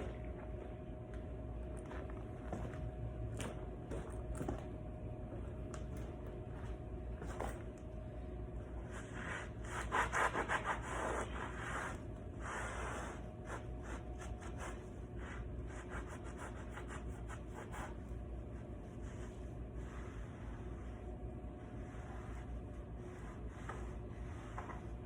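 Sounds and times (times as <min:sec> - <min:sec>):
towel rubbing and wiping: 0:08.8 - 0:25.0.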